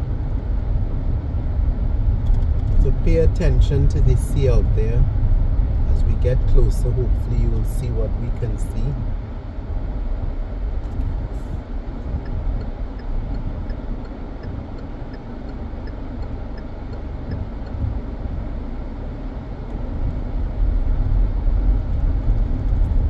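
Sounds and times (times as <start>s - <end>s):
road and engine rumble in car: 0.0s - 23.0s
faint regular ticking: 11.8s - 18.5s.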